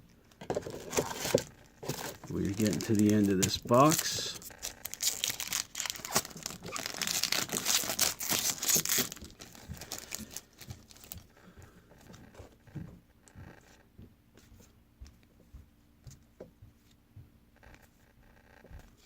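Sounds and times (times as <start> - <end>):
wrapper tearing and crinkling: 0.7 - 11.2.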